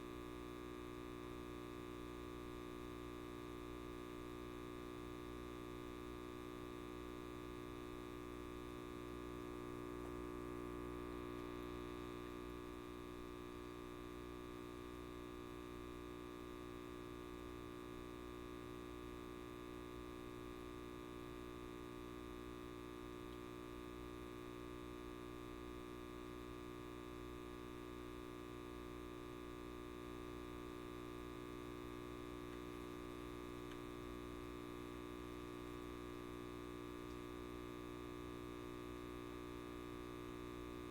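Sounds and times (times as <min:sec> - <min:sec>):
light bulb buzzing: 0:29.3 - 0:40.9.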